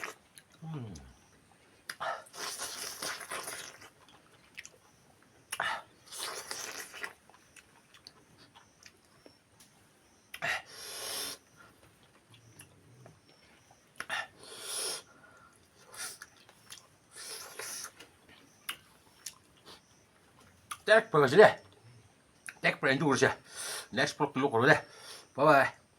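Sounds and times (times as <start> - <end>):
person chewing: 1.9 - 4.9, 5.5 - 9.1, 15.6 - 20.8.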